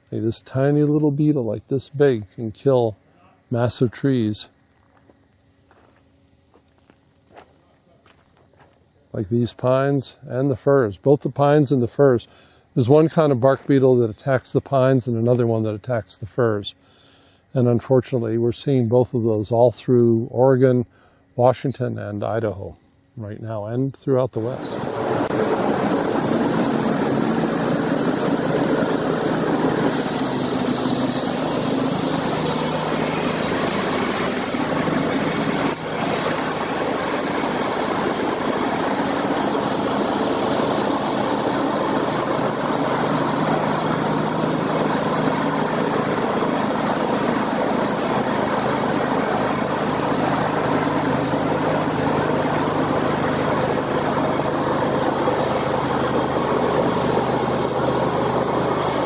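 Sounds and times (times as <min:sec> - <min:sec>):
engine running: 0:24.3 - 0:59.0.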